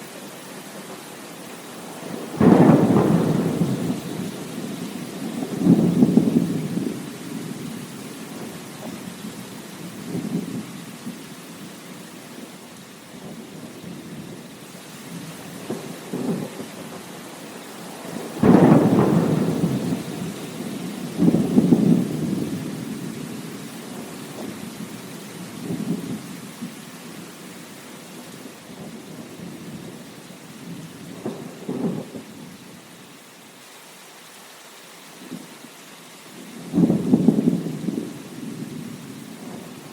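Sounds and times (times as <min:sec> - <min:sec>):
rain hissing: 0:00.0 - 0:39.9
wind: 0:00.0 - 0:39.9
low thunder rumbles: 0:01.9 - 0:11.3, 0:13.2 - 0:17.2, 0:17.9 - 0:27.4, 0:28.1 - 0:32.7, 0:36.4 - 0:39.9.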